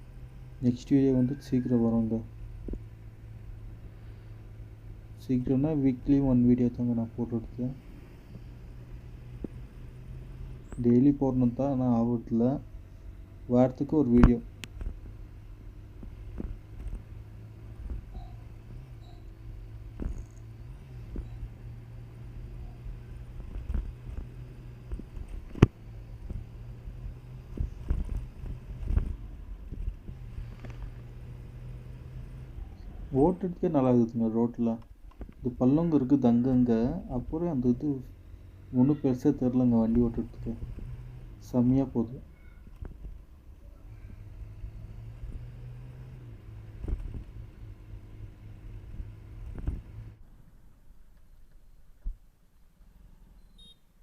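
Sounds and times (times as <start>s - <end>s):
low engine hum: 0.0s - 50.9s
road rumble: 0.0s - 53.7s.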